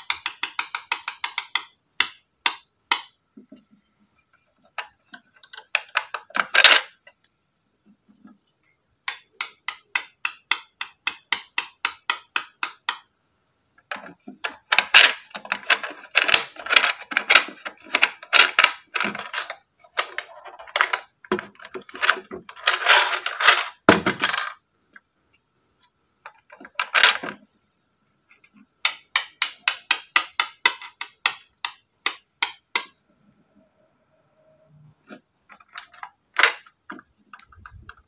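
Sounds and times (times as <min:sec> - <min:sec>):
plastic toy clicking and rattling: 0:00.0 - 0:03.2, 0:04.6 - 0:07.2, 0:09.0 - 0:13.1, 0:13.8 - 0:24.6, 0:26.2 - 0:27.4, 0:28.3 - 0:33.0, 0:35.1 - 0:38.0.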